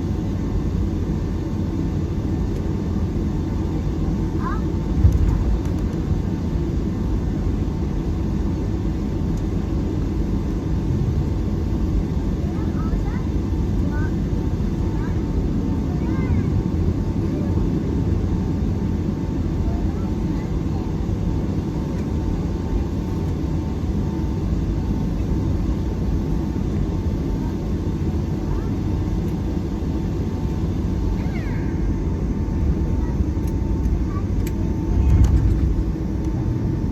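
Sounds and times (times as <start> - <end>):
airliner cabin rumble: 0.0 - 36.9.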